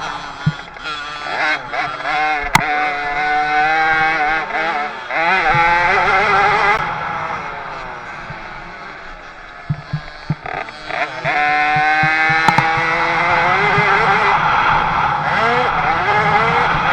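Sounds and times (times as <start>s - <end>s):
sharp click: 0.0s - 1.4s, 2.4s - 3.2s, 5.5s - 6.0s, 9.4s - 14.0s
two-stroke bike engine revving: 0.0s - 16.9s.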